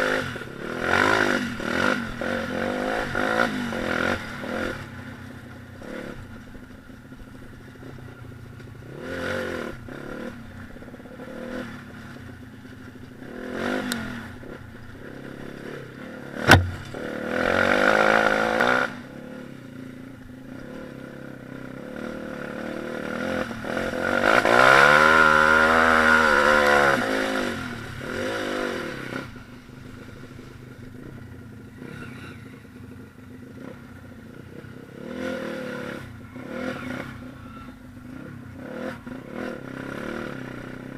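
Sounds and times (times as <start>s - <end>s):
pit bike engines revving: 0.0s - 40.9s
sharp knock: 16.4s - 17.0s.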